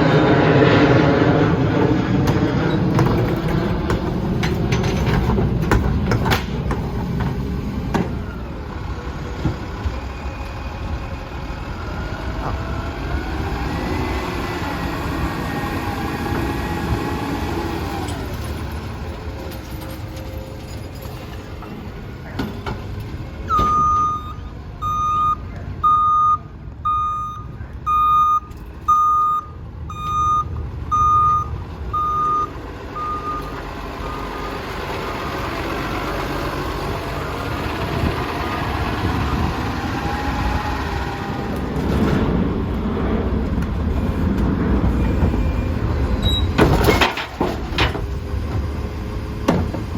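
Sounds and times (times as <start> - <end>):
garbage truck running: 0.0 - 26.1, 26.7 - 49.9
backup alarm beeping: 23.5 - 34.6.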